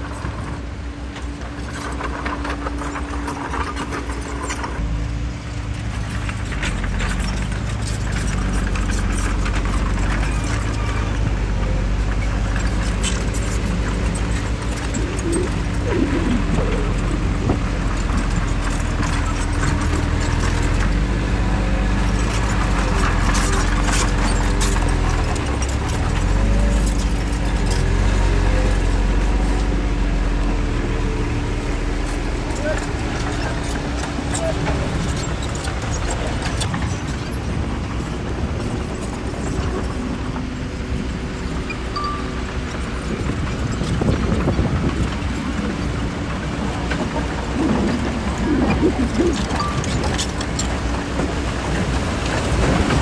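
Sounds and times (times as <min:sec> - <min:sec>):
bulldozer diesel engine running: 0:00.0 - 0:53.0
metallic clanks of steel tracks: 0:00.0 - 0:53.0.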